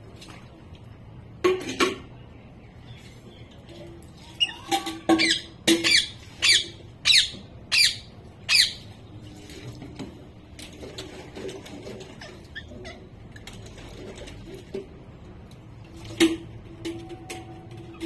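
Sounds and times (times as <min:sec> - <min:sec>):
parrot squawking: 0:04.2 - 0:08.8, 0:12.1 - 0:13.1.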